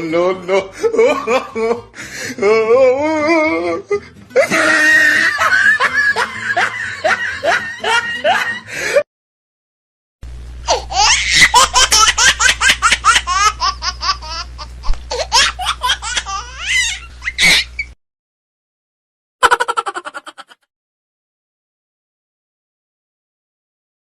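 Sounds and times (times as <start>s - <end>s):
person laughing: 0.4s - 9.0s, 10.7s - 17.8s, 19.4s - 20.7s
steady low hum: 10.2s - 17.9s.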